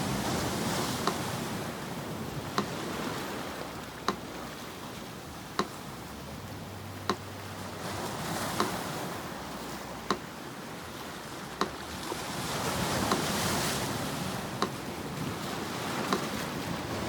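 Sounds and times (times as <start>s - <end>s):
sea surf washing: 0.0s - 17.0s
metronome ticking: 0.8s - 1.5s, 2.4s - 2.8s, 3.7s - 4.4s, 5.3s - 7.5s, 8.5s - 10.4s, 11.6s - 12.0s, 13.0s - 13.3s, 14.2s - 15.0s, 16.1s - 16.4s.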